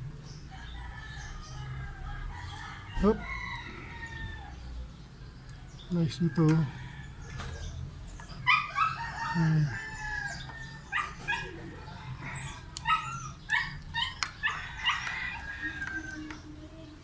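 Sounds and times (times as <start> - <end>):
rooster crowing: 0.6 - 4.6, 8.5 - 13.2, 14.4 - 16.4.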